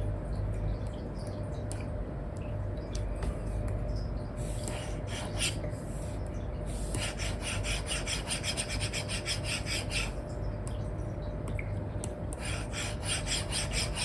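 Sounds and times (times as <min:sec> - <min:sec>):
stylus scratching on screen: 0:04.4 - 0:10.2, 0:12.4 - 0:14.0.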